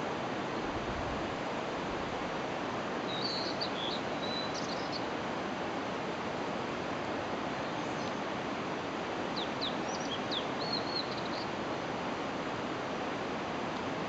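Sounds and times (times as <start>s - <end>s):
steady background hiss: 0.0s - 14.0s
small bird chirping: 3.1s - 5.1s, 9.4s - 11.5s.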